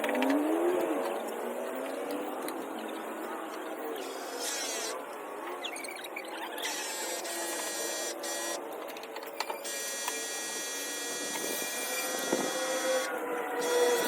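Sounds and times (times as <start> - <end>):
small electric motor whining: 4.0 - 5.0, 6.2 - 8.6, 9.4 - 14.0.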